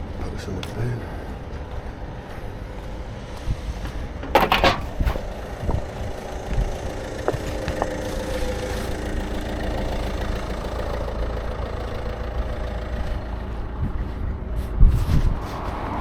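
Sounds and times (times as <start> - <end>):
vehicle engine idling: 3.2 - 14.9
thump: 4.2 - 5.2.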